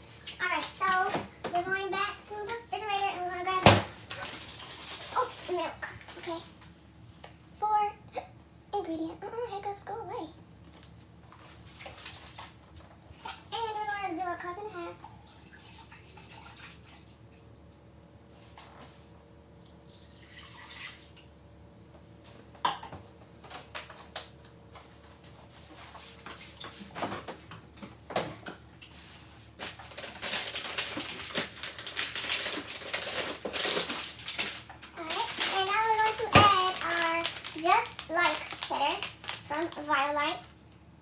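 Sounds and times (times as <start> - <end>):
milk pouring into a cup: 19.9 - 21.3
person speaking: 35.0 - 40.5.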